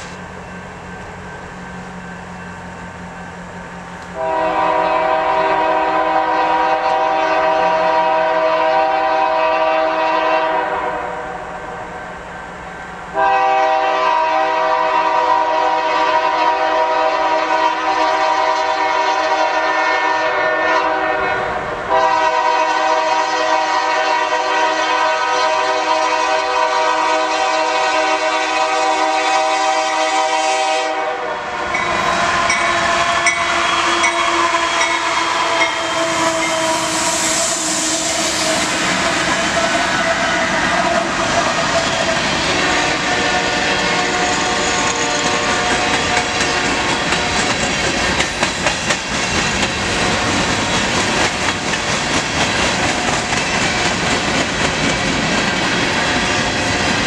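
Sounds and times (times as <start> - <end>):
locomotive engine noise: 0.0 - 9.0
locomotive air horn: 4.1 - 11.8, 13.1 - 47.4
wheel and rail clatter: 43.8 - 57.0.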